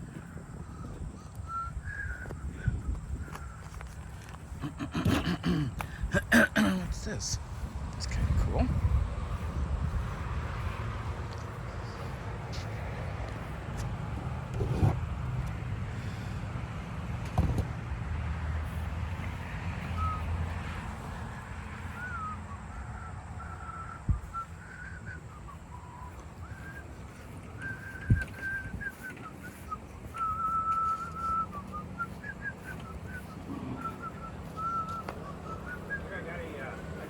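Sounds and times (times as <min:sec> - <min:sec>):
steady low rumble: 0:00.0 - 0:17.1
person whistling a slow tune: 0:01.4 - 0:02.4, 0:19.9 - 0:20.3, 0:21.9 - 0:36.1.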